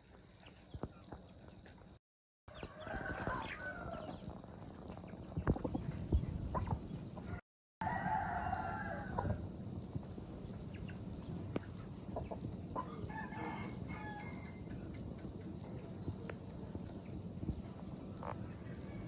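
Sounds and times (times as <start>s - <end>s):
chickens clucking: 2.5s - 7.4s, 10.8s - 13.5s, 17.8s - 18.8s
rooster crowing: 2.6s - 4.2s, 7.8s - 9.4s, 12.9s - 14.7s.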